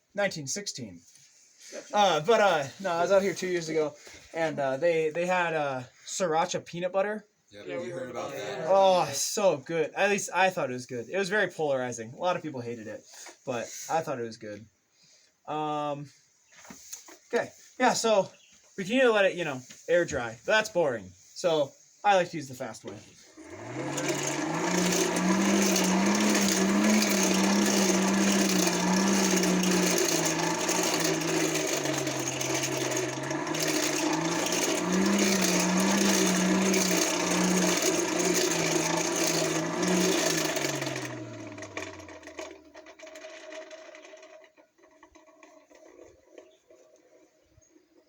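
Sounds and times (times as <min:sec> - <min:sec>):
forge blower whirring: 0:23.4 - 0:42.6.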